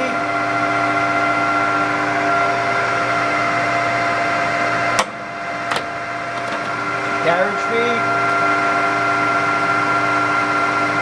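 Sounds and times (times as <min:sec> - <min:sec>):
lathe gears whining: 0:05.6 - 0:07.6
sharp lever click: 0:05.7 - 0:07.2.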